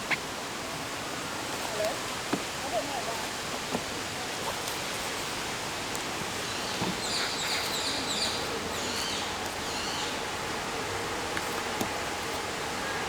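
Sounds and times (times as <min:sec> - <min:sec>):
outdoor background hiss: 0:00.0 - 0:13.0
small bird chirping: 0:06.5 - 0:10.2.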